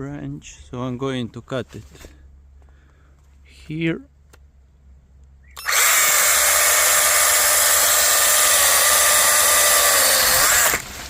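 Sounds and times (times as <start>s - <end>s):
chainsaw cutting wood: 5.6s - 11.0s.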